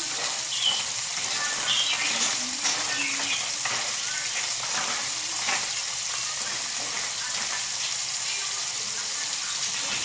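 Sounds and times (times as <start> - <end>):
utensil scraping pan: 0.0 - 8.0
food sizzling in a pan: 0.0 - 10.0.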